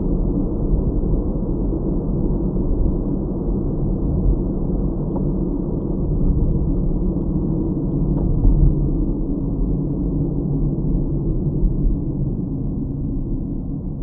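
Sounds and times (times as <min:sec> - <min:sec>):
car road and engine noise: 0:00.0 - 0:14.0.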